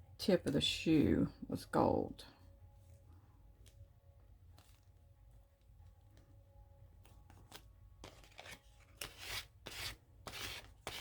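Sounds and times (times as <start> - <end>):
paper scratching strokes: 7.5 - 11.0.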